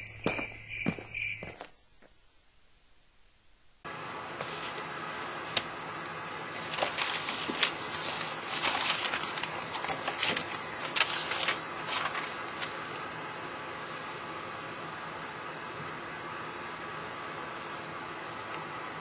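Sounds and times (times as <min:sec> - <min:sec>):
notebook pages rustling: 0:04.4 - 0:13.2.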